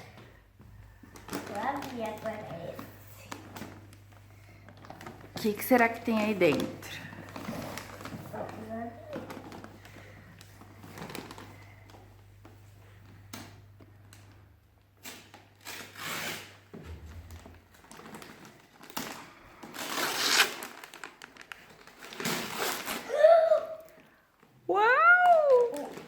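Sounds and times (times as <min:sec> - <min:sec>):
wrapping paper tearing and crumpling: 0:01.2 - 0:03.8, 0:04.8 - 0:09.8, 0:15.0 - 0:16.6, 0:17.2 - 0:23.2, 0:25.2 - 0:26.0.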